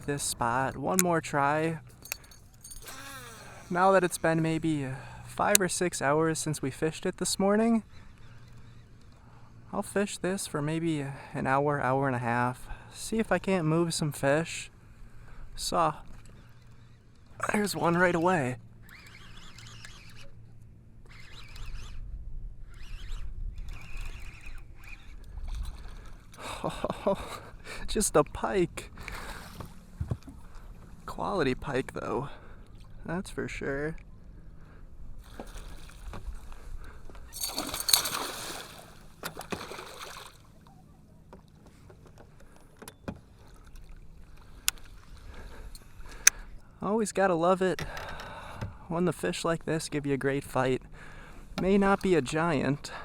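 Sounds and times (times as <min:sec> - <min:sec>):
fishing reel zipping: 0:01.8 - 0:05.7, 0:16.2 - 0:20.4, 0:21.0 - 0:25.9, 0:37.3 - 0:40.0
water splashing: 0:37.4 - 0:40.6.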